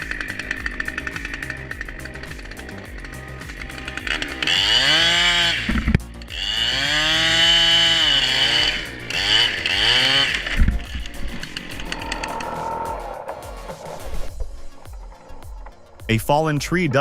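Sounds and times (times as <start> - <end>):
chainsaw engine revving: 0.0 - 13.4.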